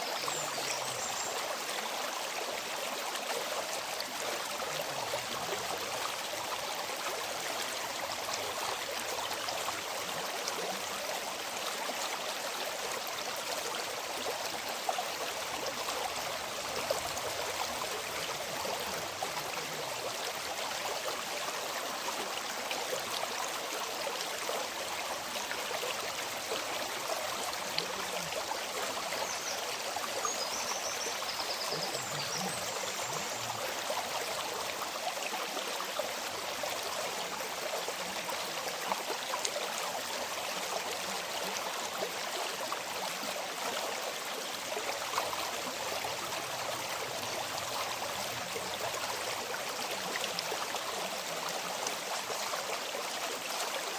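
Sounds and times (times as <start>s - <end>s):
river water flowing: 0.0s - 53.9s.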